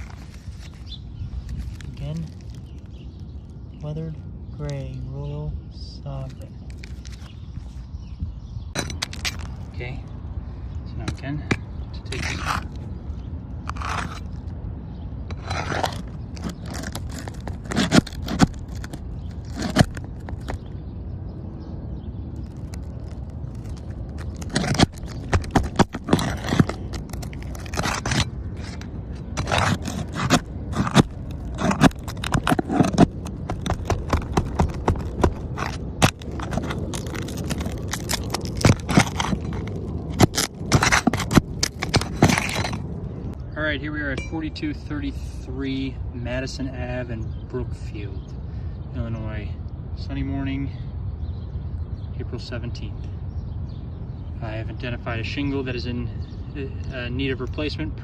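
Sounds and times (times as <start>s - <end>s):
shingles scraping and rustling: 0.0s - 3.0s, 12.1s - 12.9s, 13.6s - 14.5s, 15.3s - 20.7s, 22.4s - 43.0s.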